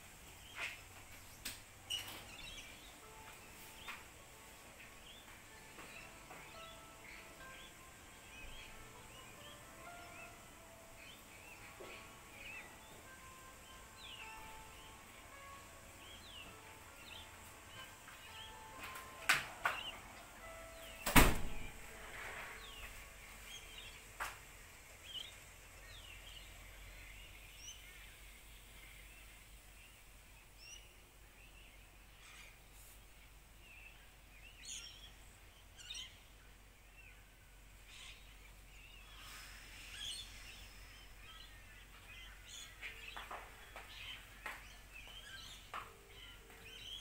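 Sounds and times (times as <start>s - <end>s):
birds chirping and calling: 0.4s - 4.0s, 4.8s - 24.1s, 33.6s - 47.0s.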